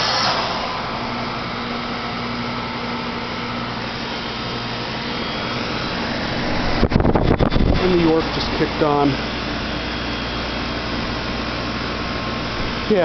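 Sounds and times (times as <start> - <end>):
faint compressor hum: 0.0 - 13.0
heat pump fan whooshing: 0.0 - 13.0
low rumble: 3.7 - 9.8.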